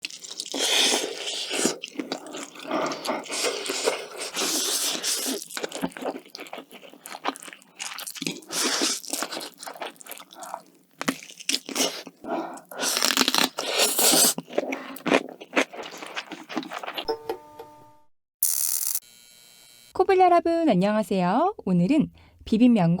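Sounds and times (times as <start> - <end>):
crunchy bites and chewing: 0.0 - 17.1.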